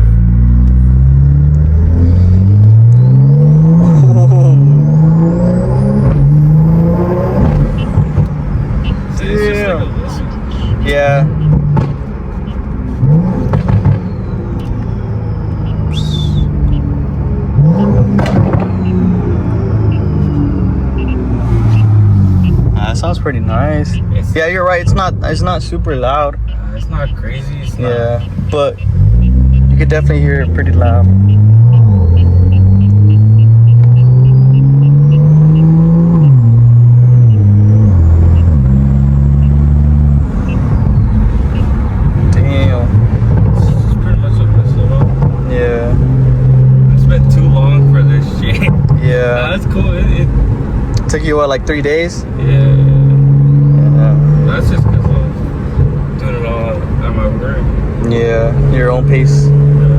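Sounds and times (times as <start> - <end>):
car engine accelerating: 0.0 - 59.9
high turbo whine: 0.0 - 59.9
turbo whistle: 14.1 - 17.0, 31.2 - 36.4.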